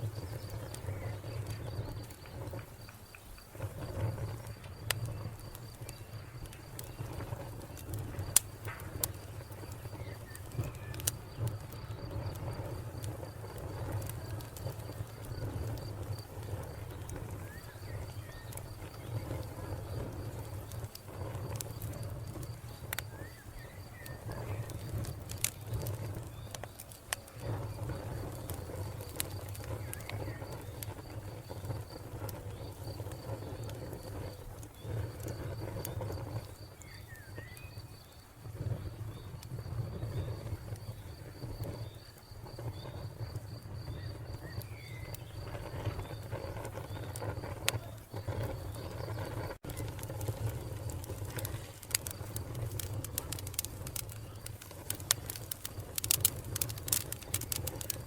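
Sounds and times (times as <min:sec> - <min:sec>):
wood fire crackling and popping: 0:00.0 - 0:58.0
cricket chirping: 0:27.4 - 0:58.0.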